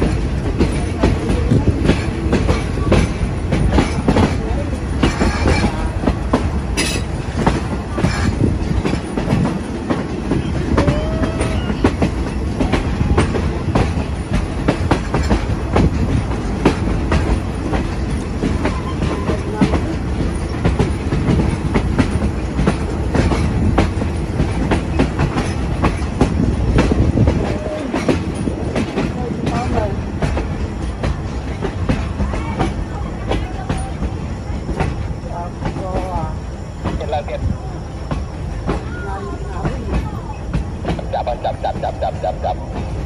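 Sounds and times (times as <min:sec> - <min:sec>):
wheels clacking over rail joints: 0:00.0 - 0:37.3
train rumbling: 0:00.0 - 0:43.0.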